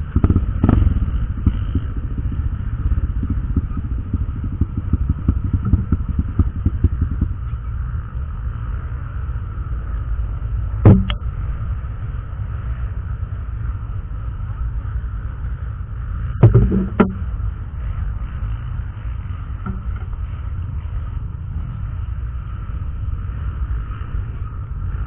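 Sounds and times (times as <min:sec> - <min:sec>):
motorcycle engine rumble: 0:00.0 - 0:25.0
sharp knocks: 0:03.2 - 0:07.3, 0:10.8 - 0:11.2, 0:16.4 - 0:17.3, 0:19.6 - 0:20.1.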